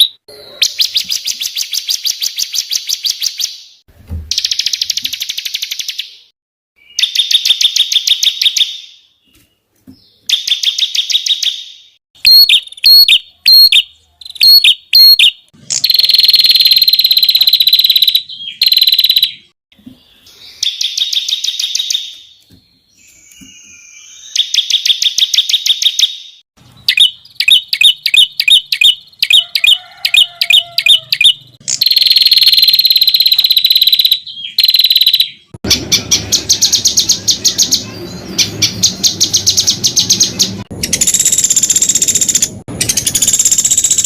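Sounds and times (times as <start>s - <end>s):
songbirds singing trills: 0.0s - 44.0s
long steady bird whistle: 10.3s - 19.5s, 23.0s - 35.5s.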